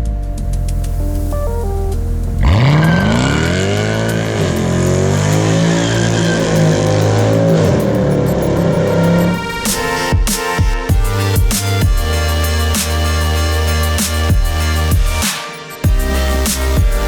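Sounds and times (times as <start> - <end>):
car engine revving hard: 2.3 - 9.5.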